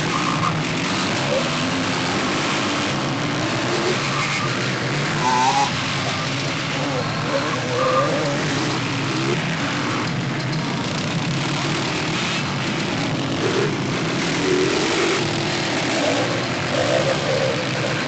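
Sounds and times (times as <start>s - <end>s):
motorcycle engines running: 0.0s - 18.0s.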